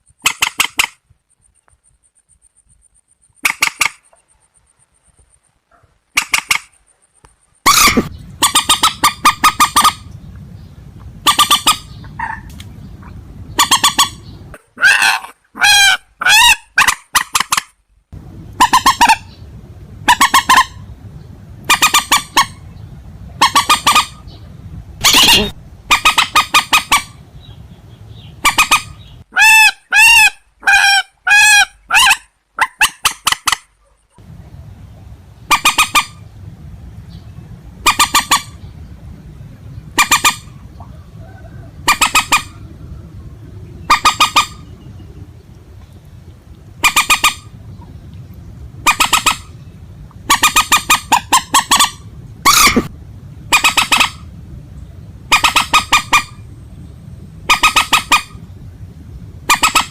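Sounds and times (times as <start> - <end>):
steady low hum: 1.0 - 14.7, 17.8 - 29.3, 34.1 - 59.9
harsh bird calls: 7.6 - 17.7, 18.6 - 32.2.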